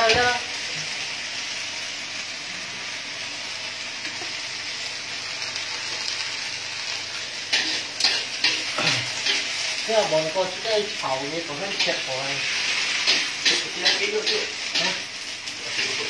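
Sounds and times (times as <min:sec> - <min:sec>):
beans sizzling in a wok: 0:00.0 - 0:16.0
spatula scraping and knocking wok: 0:07.5 - 0:09.8, 0:11.6 - 0:16.0.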